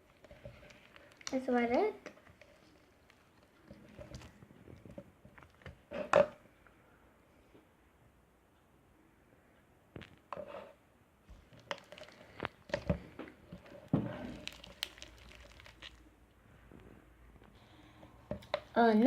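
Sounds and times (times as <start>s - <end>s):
slime clicking and popping: 0.0s - 2.2s, 11.5s - 16.0s.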